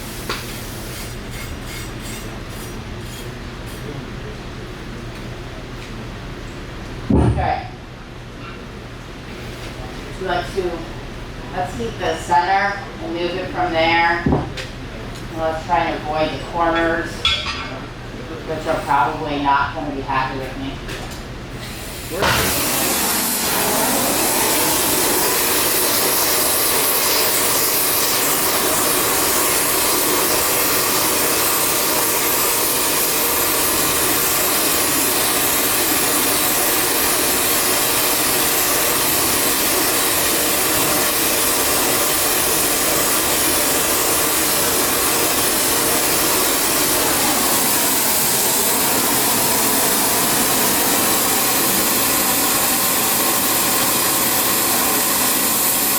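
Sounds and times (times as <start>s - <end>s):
gas torch roaring hiss: 0.0s - 1.9s, 21.5s - 55.9s.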